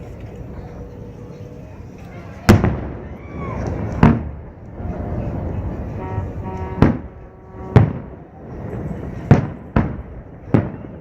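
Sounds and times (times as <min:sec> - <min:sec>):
low rumble from fireworks display: 0:00.0 - 0:11.0
fireworks booming: 0:02.4 - 0:11.0.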